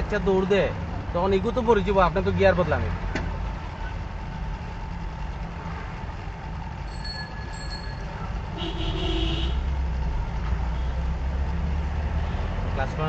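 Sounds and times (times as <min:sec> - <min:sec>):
car engine and road rumble: 0:00.0 - 0:13.0
vehicle horn: 0:08.5 - 0:09.7.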